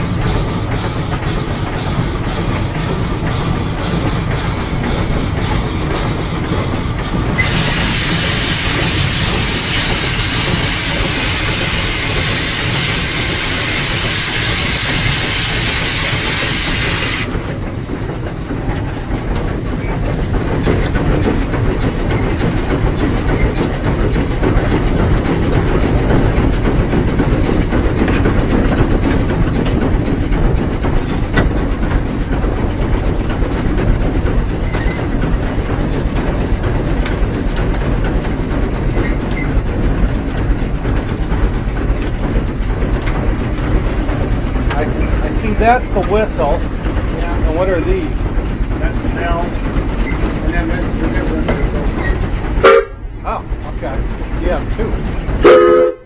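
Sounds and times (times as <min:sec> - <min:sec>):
wheels clicking over rail joints: 0:00.0 - 0:55.6
locomotive rumble: 0:00.0 - 0:56.0
loud steam hiss: 0:07.0 - 0:17.5.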